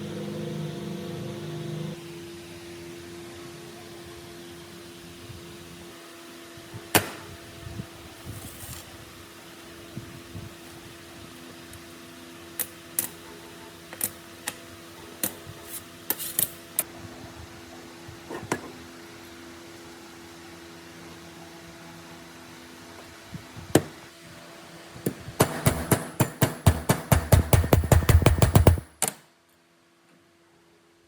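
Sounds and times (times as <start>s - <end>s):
fast regular knocks: 25.1s - 29.0s
loud knock: 25.4s - 29.0s.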